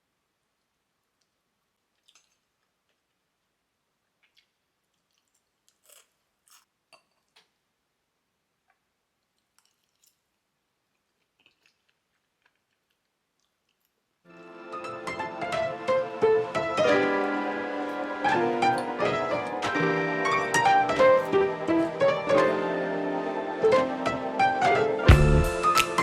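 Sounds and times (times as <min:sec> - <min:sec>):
person chewing food: 0:01.2 - 0:07.6, 0:08.7 - 0:14.1, 0:17.8 - 0:19.7
piano music: 0:14.3 - 0:26.0.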